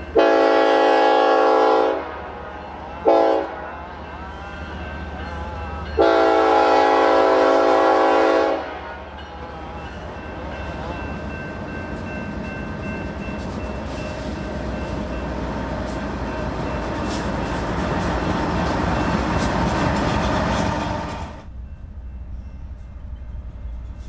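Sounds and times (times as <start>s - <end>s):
train wheels rumbling on rails: 0.0s - 24.0s
rail clicks: 9.1s - 24.0s.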